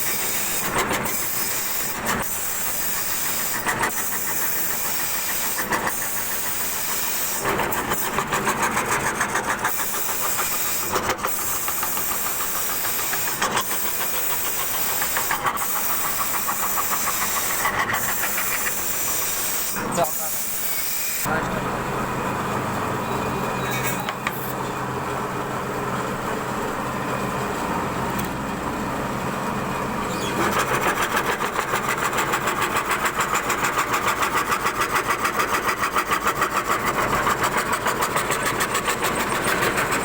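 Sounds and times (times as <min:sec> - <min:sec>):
wood router cutting wood: 0:09.7 - 0:21.3.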